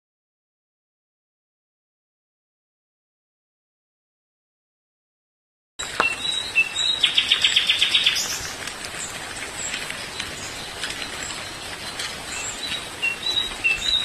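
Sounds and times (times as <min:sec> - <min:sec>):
outdoor hiss: 0:05.8 - 0:14.0
small birds chirping: 0:05.8 - 0:14.0.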